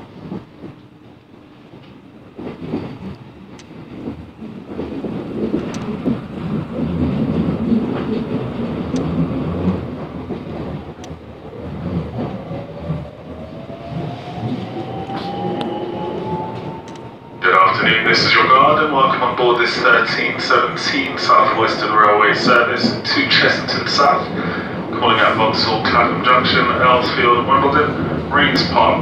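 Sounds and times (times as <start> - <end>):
traction motor whine: 9.7 - 19.0.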